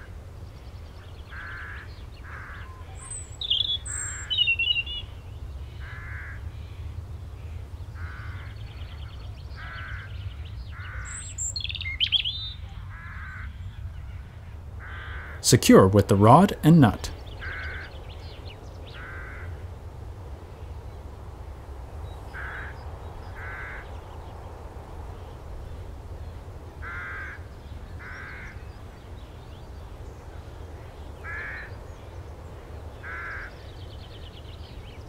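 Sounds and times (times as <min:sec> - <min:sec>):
bird calling: 0:01.2 - 0:19.6.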